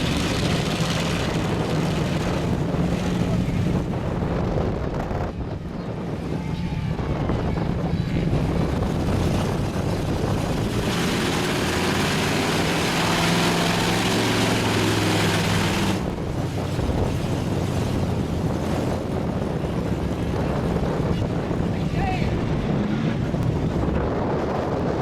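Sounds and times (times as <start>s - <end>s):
loud rushing noise: 0.0s - 4.2s
truck engine revving: 0.0s - 4.6s, 8.2s - 21.6s.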